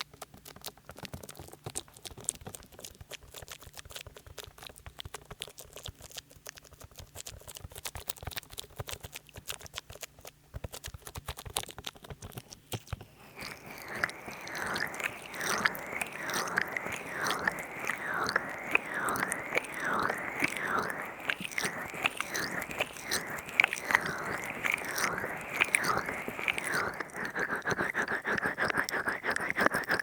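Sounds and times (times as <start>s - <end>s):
oily hands massaging microphone: 12.4s - 30.0s
wet squelchy crackling: 12.4s - 30.0s
rhythmic rubbing strokes: 13.1s - 30.0s.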